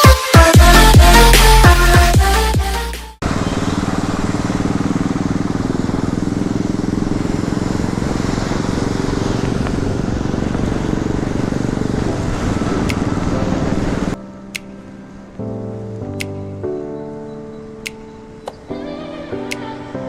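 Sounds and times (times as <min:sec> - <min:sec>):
motorcycle engine thudding: 0:03.2 - 0:11.9
wind noise: 0:07.8 - 0:14.2.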